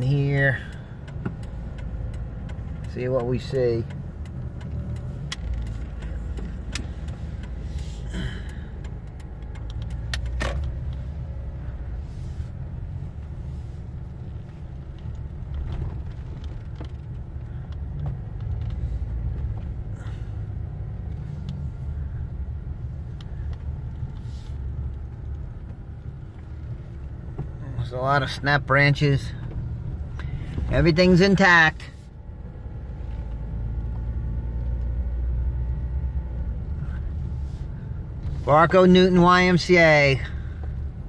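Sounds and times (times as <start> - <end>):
clicks and light knocks: 0.0 - 7.9, 8.5 - 11.1, 14.2 - 19.9
car engine and tyres rumbling: 0.0 - 41.0.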